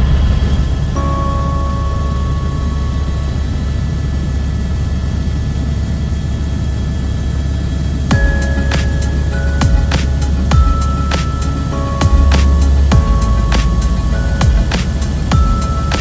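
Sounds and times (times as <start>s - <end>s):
vehicle engine droning: 0.0s - 16.0s
steady tones: 8.1s - 16.0s.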